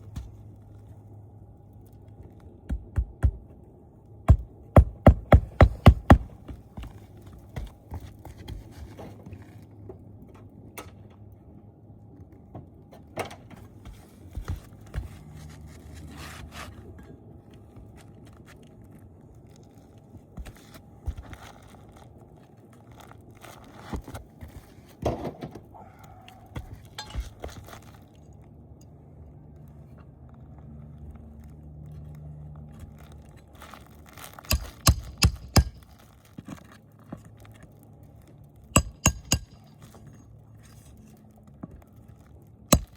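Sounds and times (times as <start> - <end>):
hammer striking roofing nails: 2.7 - 3.6, 4.3 - 7.0, 34.4 - 35.9, 38.8 - 39.7
shingles being handled: 4.3 - 9.6, 32.8 - 38.1.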